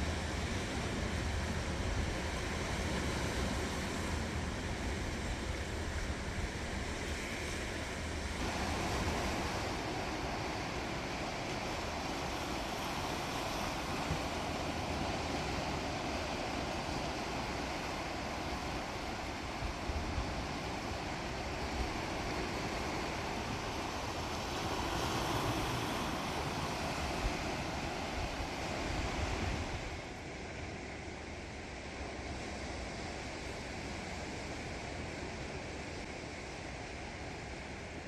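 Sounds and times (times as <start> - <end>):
wind buffeting microphone: 0.0 - 30.1
sea waves washing on shore: 0.0 - 38.0.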